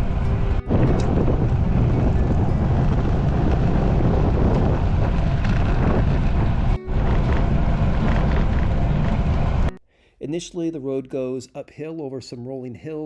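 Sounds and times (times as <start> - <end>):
wind buffeting microphone: 0.0 - 9.7
road and tyre noise: 0.0 - 9.8.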